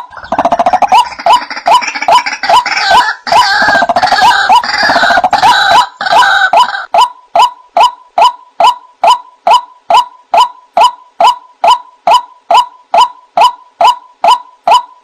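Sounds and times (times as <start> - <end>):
harsher bird calls: 0.0 - 15.0
waterhen calling kwak: 0.0 - 15.0.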